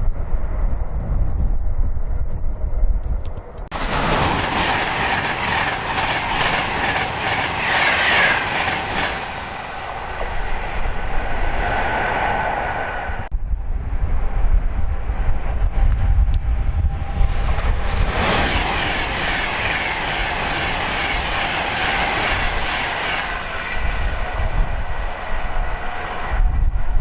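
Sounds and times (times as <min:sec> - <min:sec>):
wind rumbling on microphone: 0:00.0 - 0:27.0
train wheels clattering: 0:03.7 - 0:10.6.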